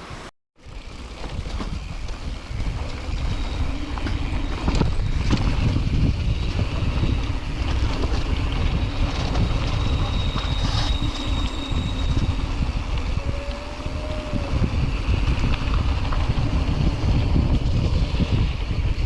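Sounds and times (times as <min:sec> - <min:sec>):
wind buffeting microphone: 0:00.7 - 0:19.0.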